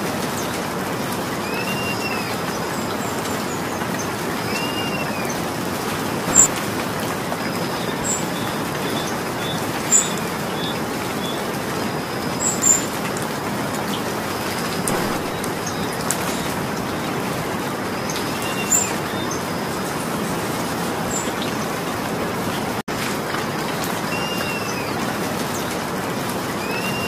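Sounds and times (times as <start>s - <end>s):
steady rain hiss: 0.0s - 27.0s
bird chirping faintly: 6.3s - 6.5s, 14.8s - 16.5s.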